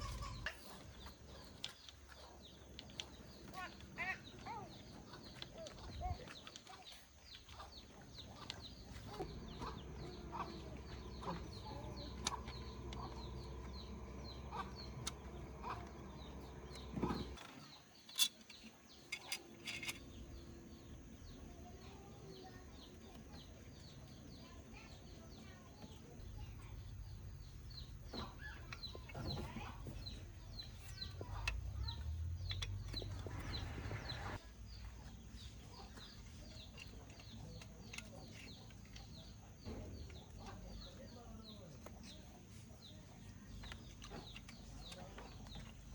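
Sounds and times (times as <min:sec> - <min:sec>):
chicken clucking: 0:00.0 - 0:17.8
birds chirping: 0:00.0 - 0:45.9
sharp clicks and knocks: 0:05.3 - 0:20.3
low rumble: 0:08.2 - 0:17.4, 0:29.9 - 0:34.5.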